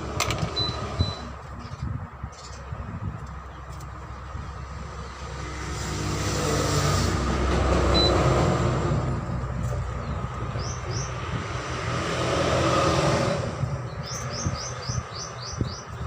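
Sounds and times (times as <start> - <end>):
small bird chirping: 13.9 - 16.0.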